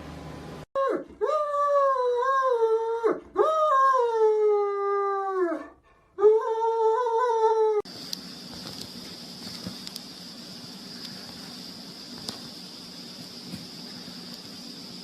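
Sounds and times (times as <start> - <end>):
dog howling: 0.8 - 7.9.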